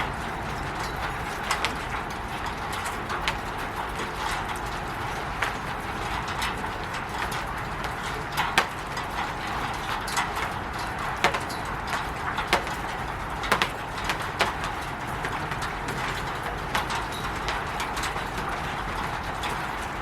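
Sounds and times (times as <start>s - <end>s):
heavy raindrop taps: 0.0s - 20.0s
rain on a roof: 0.0s - 20.0s.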